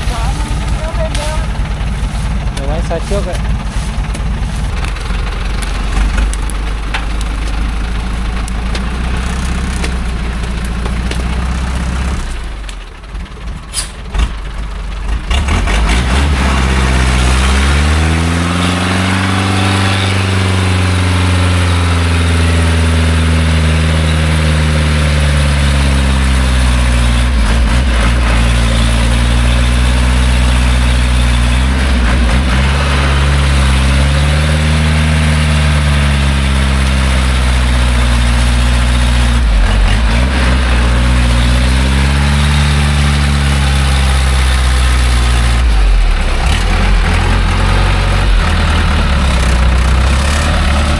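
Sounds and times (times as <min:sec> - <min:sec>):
truck engine revving under load: 0:00.0 - 0:50.9.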